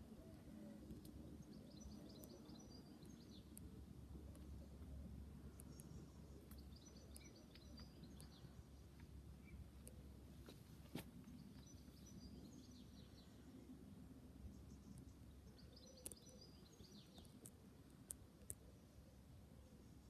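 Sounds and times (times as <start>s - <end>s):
low steady rumble: 0.0s - 20.0s
small birds chirping: 0.0s - 20.0s.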